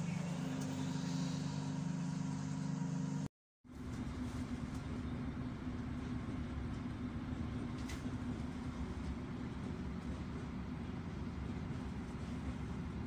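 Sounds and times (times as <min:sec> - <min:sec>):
steady hum: 0:00.0 - 0:09.5
train low rumble: 0:00.0 - 0:13.0.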